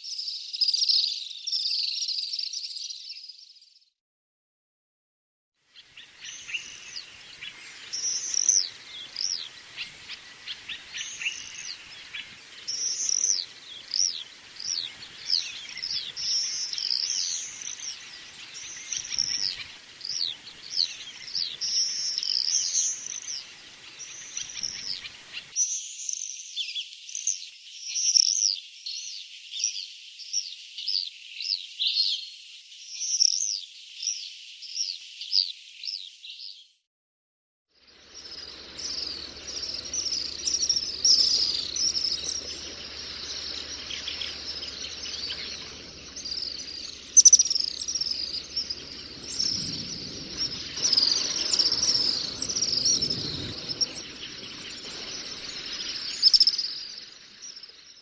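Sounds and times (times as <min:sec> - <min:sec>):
swifts screaming: 0:05.8 - 0:25.6, 0:37.9 - 0:58.0
low background hiss: 0:06.0 - 0:25.5, 0:37.9 - 0:57.8.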